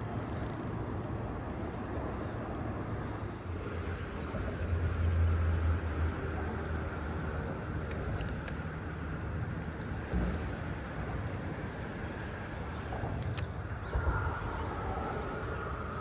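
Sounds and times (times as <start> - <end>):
road traffic rumbling: 0.0 - 16.0
vehicle engine and tyre rumble: 0.0 - 16.0
faint ticks: 4.6 - 6.8.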